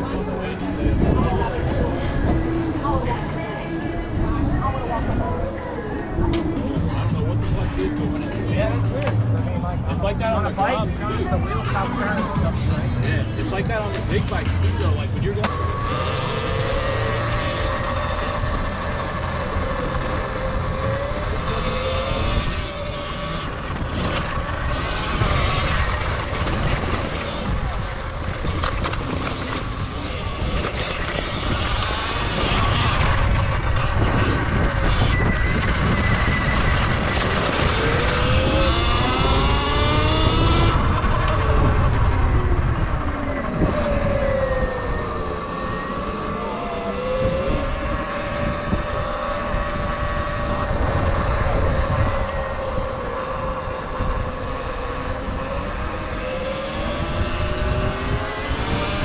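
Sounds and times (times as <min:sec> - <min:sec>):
wind rumble on microphone: 0:00.0 - 0:59.0
electric motorbike motor whining: 0:15.4 - 0:59.0.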